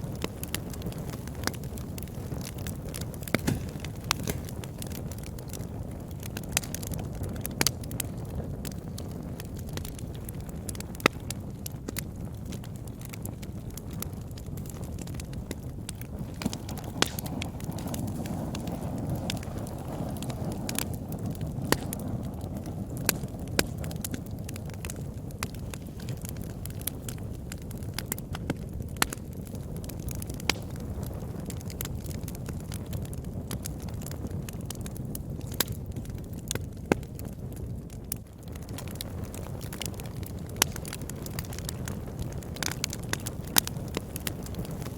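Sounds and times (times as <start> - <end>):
fire burning: 0.0 - 44.9
fire crackling and popping: 0.0 - 44.9.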